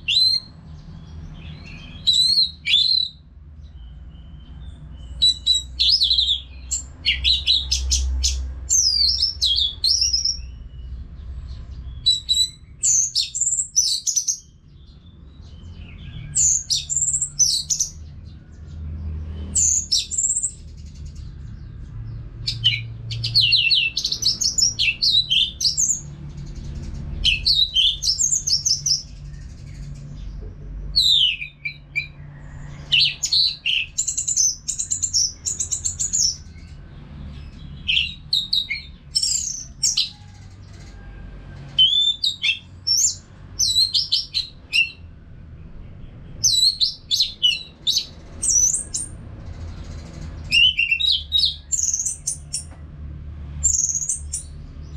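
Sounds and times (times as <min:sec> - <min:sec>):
bird singing whistled phrases: 0:01.5 - 0:03.2, 0:31.0 - 0:32.1, 0:41.8 - 0:45.0, 0:50.5 - 0:52.6.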